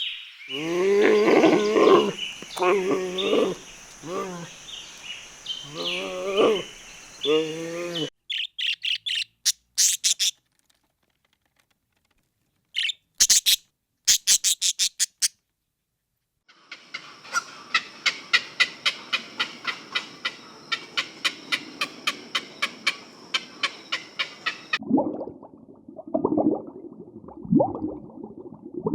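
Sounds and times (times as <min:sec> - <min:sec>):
bird chirping: 0:00.0 - 0:10.4, 0:12.7 - 0:15.3.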